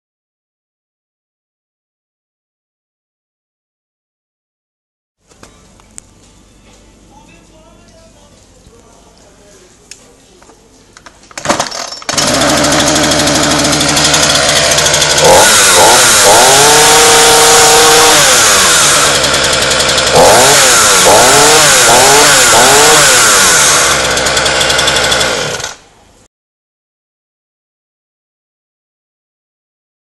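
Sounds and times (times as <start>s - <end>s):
chainsaw engine idling and revving: 11.4s - 25.8s.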